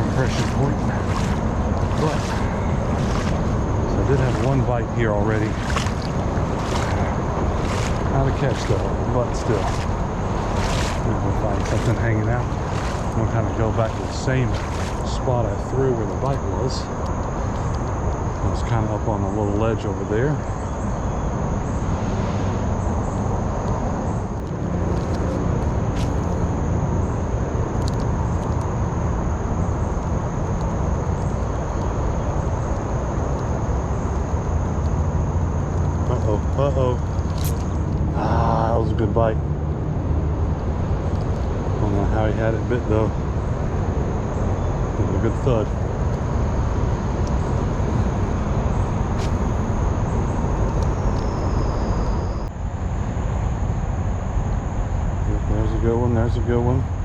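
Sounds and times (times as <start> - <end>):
creek water rushing over rocks: 0.0 - 16.6
wind buffeting microphone: 0.0 - 18.8
faint high whine: 0.0 - 57.0.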